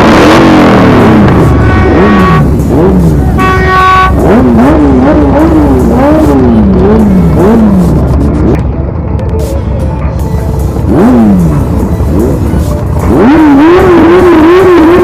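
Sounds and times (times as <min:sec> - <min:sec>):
engines revving: 0:00.0 - 0:15.0.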